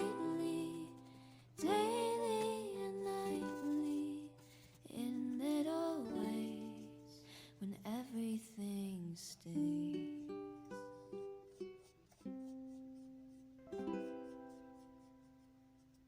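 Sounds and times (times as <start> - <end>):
plucked ukulele: 0.0 - 1.0, 1.6 - 4.4, 5.1 - 7.1, 9.6 - 12.8, 13.6 - 14.7
person singing without words: 0.0 - 10.4.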